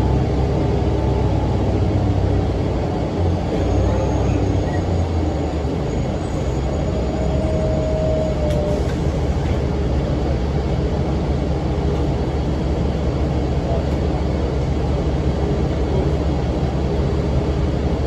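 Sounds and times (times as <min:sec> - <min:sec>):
bus diesel engine running: 0:00.0 - 0:18.0.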